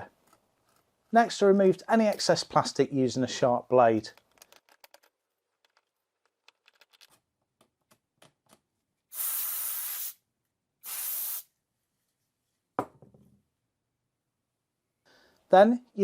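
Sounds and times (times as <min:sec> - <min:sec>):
light clicks and handling noises: 0:04.0 - 0:08.7
spray bottle hissing: 0:09.1 - 0:10.2, 0:10.8 - 0:11.5.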